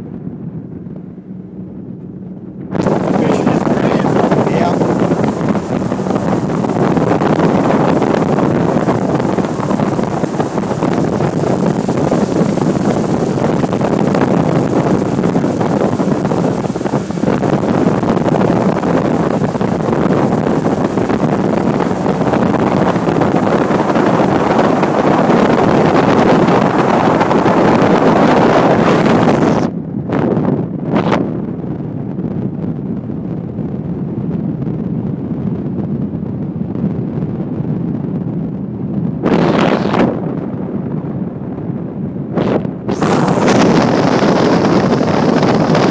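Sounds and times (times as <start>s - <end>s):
boat motor: 0.0s - 29.7s
water beneath boat: 0.0s - 33.6s
wind buffeting microphone: 0.0s - 45.9s.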